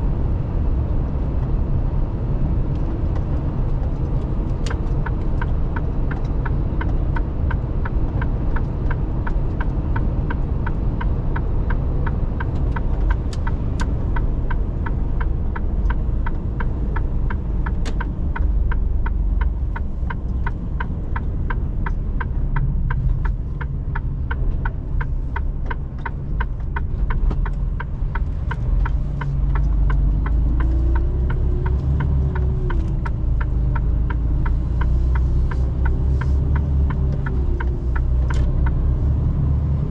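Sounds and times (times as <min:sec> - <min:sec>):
lorry engine and road rumble: 0:00.0 - 0:39.9
regular ticking: 0:04.2 - 0:39.6.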